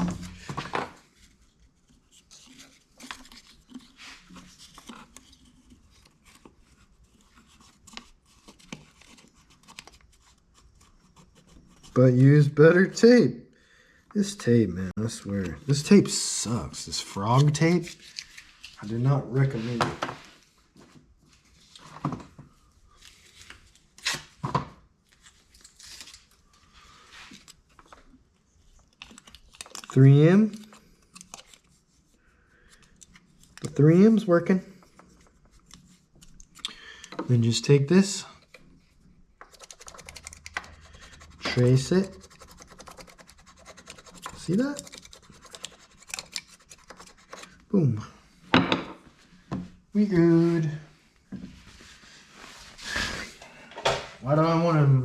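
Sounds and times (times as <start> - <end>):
tape being pulled and torn: 24.0 - 24.4
tape crinkling: 28.8 - 31.8.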